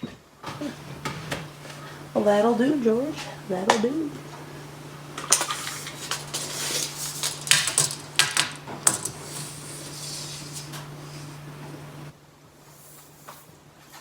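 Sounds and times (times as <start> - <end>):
steady low hum: 0.5 - 12.2
small hard objects clinking: 5.2 - 9.7.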